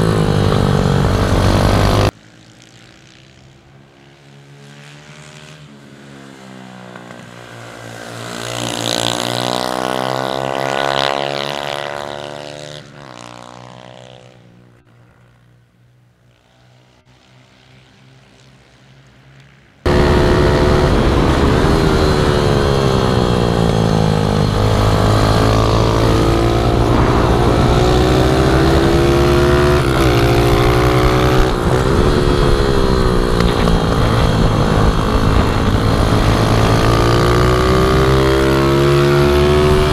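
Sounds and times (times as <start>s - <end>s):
pit bike engine revving up and down: 0.0s - 2.2s, 8.4s - 14.4s, 19.9s - 39.9s
pit bike engine passing by: 19.9s - 39.9s
wind noise: 19.9s - 39.9s.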